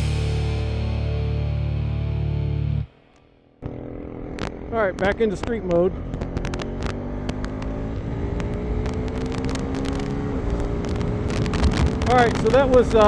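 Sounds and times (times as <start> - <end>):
motorcycle engine pulling: 3.6 - 13.0
wind buffeting on microphone: 10.4 - 13.0.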